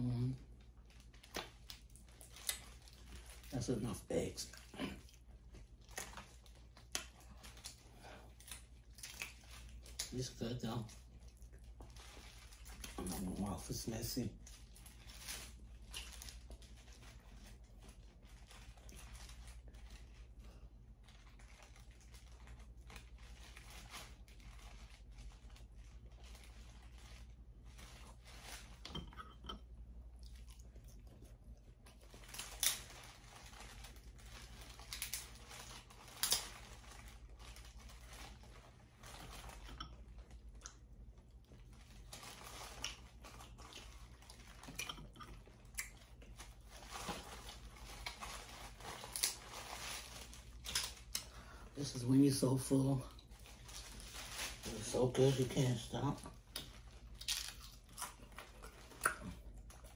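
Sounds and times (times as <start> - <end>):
chewing: 4.5 - 10.2, 10.8 - 13.2, 27.8 - 48.5, 56.3 - 59.9.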